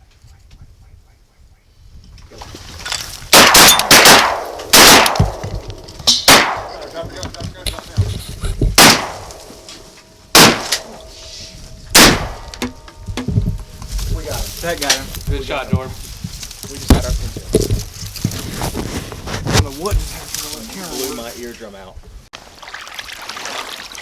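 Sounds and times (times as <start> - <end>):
shotgun shots echoing: 3.3 - 7.0, 8.8 - 9.6, 10.3 - 11.2, 11.9 - 12.9.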